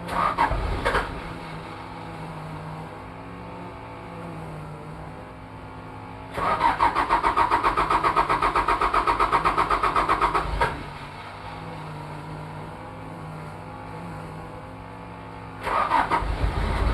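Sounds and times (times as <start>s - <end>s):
engine cranking on starter motor: 0.0s - 2.9s, 6.3s - 12.6s, 15.6s - 16.9s.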